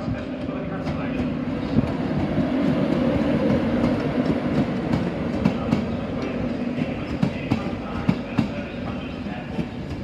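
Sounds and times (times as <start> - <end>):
electric train hum: 0.0 - 10.0.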